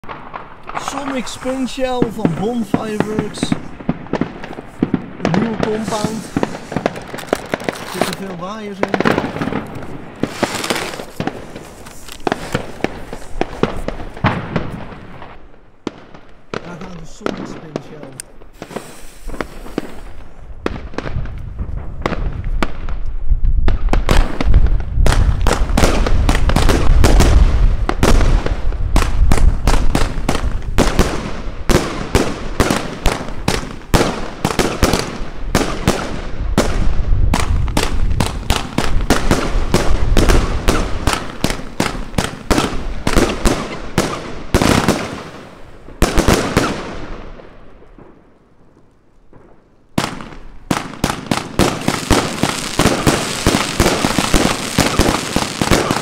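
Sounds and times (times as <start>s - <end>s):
fireworks launch thumps and bursts: 0.0s - 45.4s, 50.0s - 56.0s.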